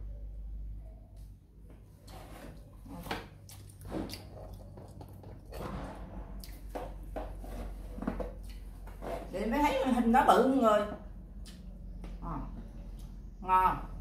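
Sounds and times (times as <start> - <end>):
steady low hum: 0.0 - 14.0
wet chewing and mouth sounds: 2.0 - 5.6, 6.4 - 9.0, 11.3 - 13.3.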